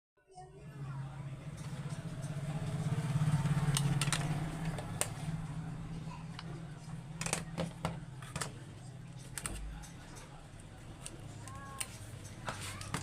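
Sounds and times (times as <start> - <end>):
engine running: 0.6 - 7.3.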